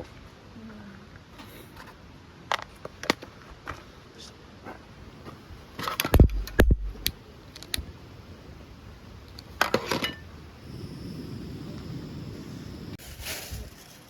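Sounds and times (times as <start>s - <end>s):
steady low rush: 5.0s - 9.6s, 10.2s - 13.0s.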